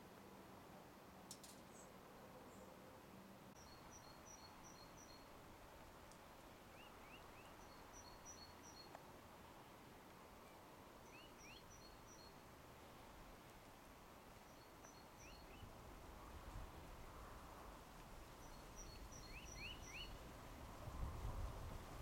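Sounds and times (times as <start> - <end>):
small bird chirping: 3.6 - 5.3, 6.7 - 9.0, 11.0 - 12.4, 18.4 - 20.2.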